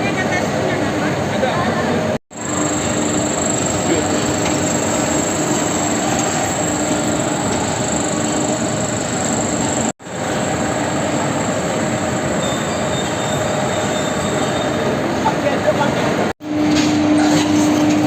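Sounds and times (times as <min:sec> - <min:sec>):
high machine whine: 0:02.3 - 0:14.9
factory machinery din: 0:02.3 - 0:18.0.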